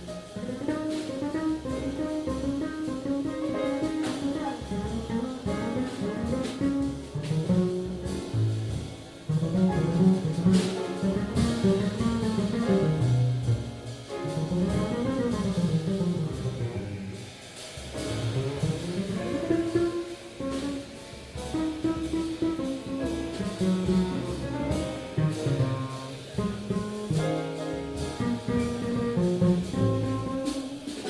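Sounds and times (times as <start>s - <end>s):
jazz band playing: 0.0s - 31.0s.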